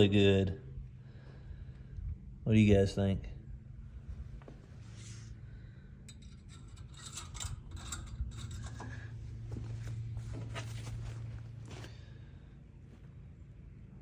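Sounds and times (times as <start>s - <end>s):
low steady hum: 0.0s - 14.0s
rubbing and rustling: 6.6s - 11.9s.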